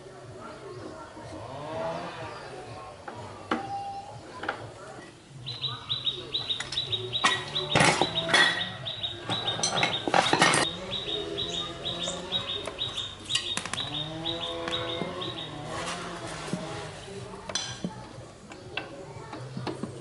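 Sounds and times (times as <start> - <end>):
small bird chirping rapidly: 5.4 - 15.9.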